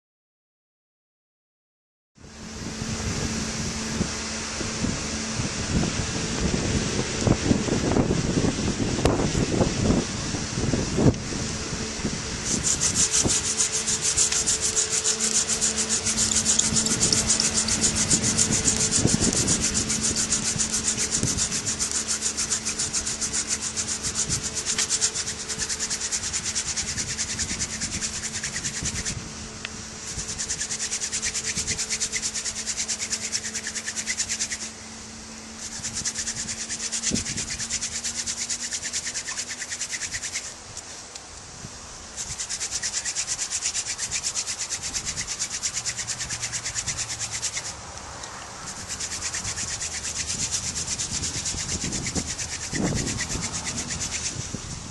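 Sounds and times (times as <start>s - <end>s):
wood-on-wood rasping rub: 11.0s - 34.8s, 35.5s - 40.6s, 42.1s - 47.8s, 48.6s - 54.6s.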